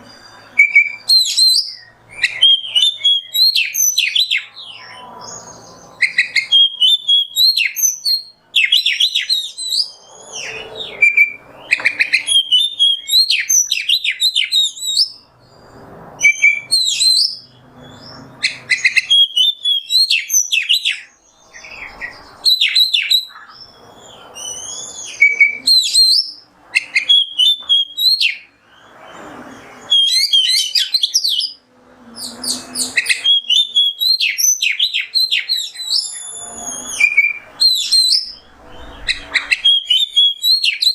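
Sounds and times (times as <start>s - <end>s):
bird singing whistles and trills: 0.0s - 31.6s, 32.2s - 40.9s.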